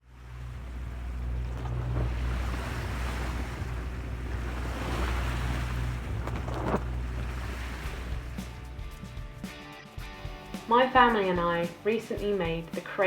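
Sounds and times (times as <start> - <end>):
sea waves rushing: 0.0 - 9.6
wind buffeting microphone: 0.2 - 8.8.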